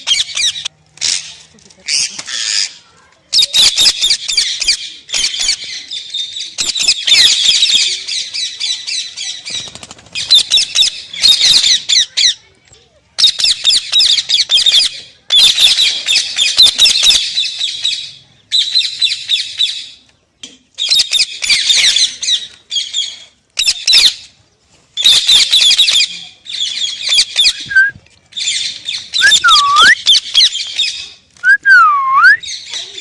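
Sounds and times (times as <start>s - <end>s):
whistled note: 29.2s - 30.0s.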